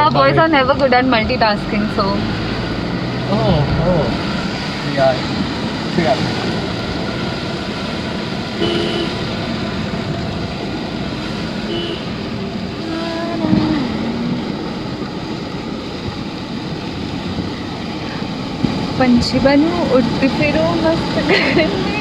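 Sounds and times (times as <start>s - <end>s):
car road and engine noise: 0.0s - 22.0s
faint pitched sounds: 11.7s - 16.2s.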